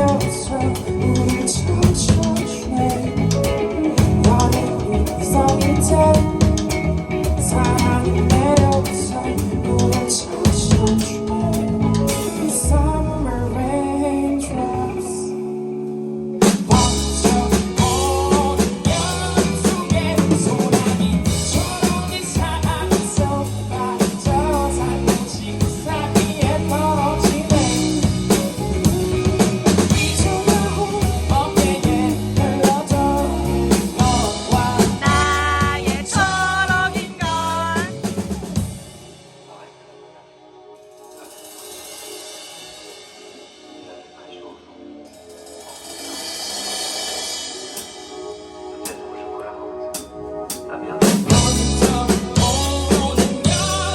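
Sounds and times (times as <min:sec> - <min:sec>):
person singing: 0:00.0 - 0:15.7, 0:16.4 - 0:38.6, 0:48.8 - 0:53.9
live band music: 0:00.0 - 0:53.9
drum kit crashing: 0:16.4 - 0:39.6, 0:50.0 - 0:53.9.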